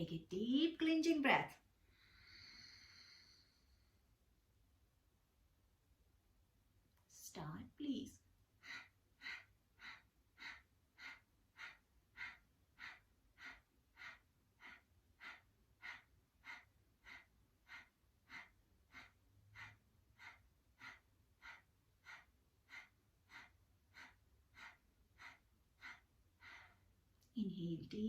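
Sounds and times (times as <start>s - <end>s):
forceful nasal exhalations: 8.6s - 26.9s.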